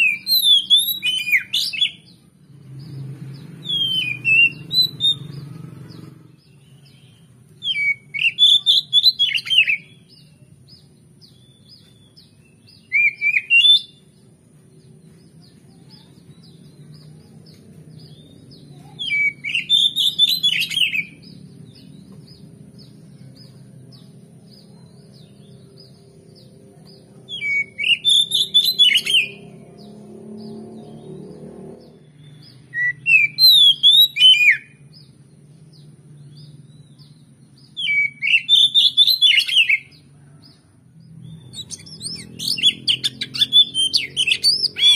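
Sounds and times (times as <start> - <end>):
bird singing whistled phrases: 0.0 - 2.1, 3.6 - 5.4, 6.5 - 10.3, 11.3 - 14.0, 18.9 - 21.3, 27.3 - 29.4, 32.2 - 34.8, 37.6 - 39.9, 41.5 - 44.9.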